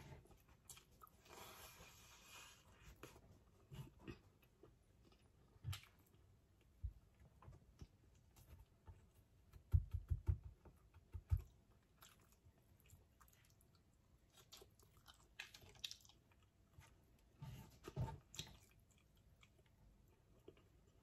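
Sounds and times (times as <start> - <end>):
wet chewing and mouth clicks: 11.1 - 17.2, 18.2 - 21.0.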